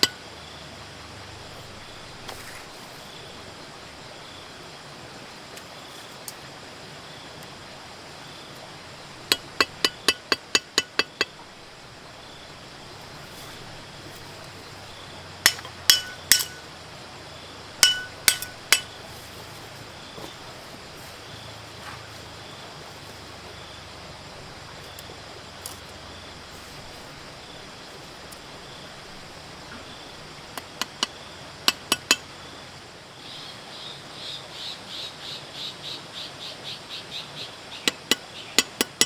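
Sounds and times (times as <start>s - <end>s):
hammer striking metal: 0.0s - 0.2s, 9.3s - 11.4s, 15.5s - 16.6s, 17.8s - 18.9s, 31.7s - 32.2s.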